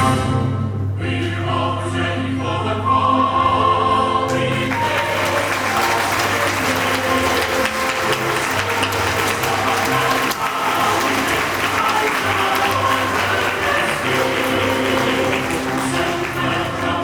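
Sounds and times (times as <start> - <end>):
group of voices singing: 0.0 - 17.0
instrumental accompaniment: 4.3 - 17.0.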